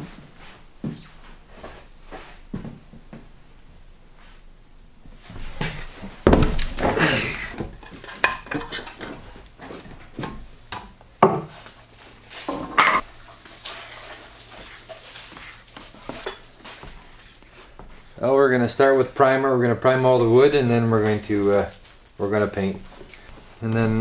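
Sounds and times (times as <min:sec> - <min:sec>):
hard objects knocking and clattering: 0:05.6 - 0:09.3, 0:12.5 - 0:13.0.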